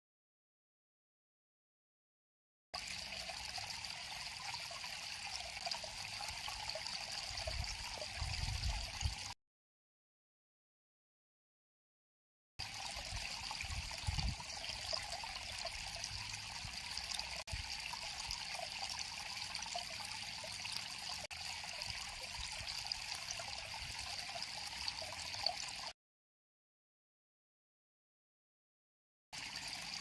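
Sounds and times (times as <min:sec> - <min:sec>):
river water flowing: 0:02.8 - 0:08.2.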